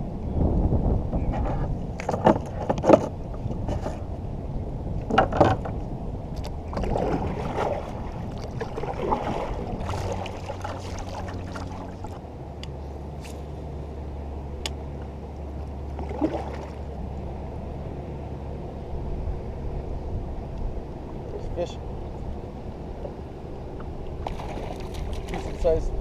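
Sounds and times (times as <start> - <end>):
low motor hum: 0.0 - 26.0
water sounds: 5.0 - 13.2, 15.1 - 26.0.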